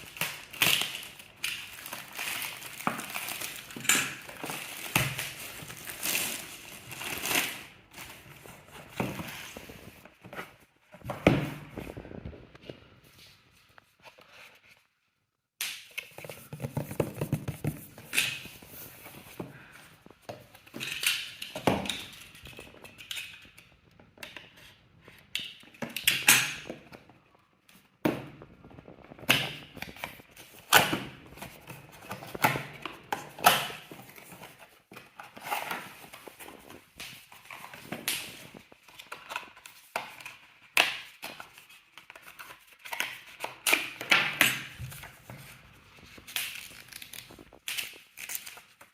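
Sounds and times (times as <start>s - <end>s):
cardboard box being handled: 16.2s - 19.6s.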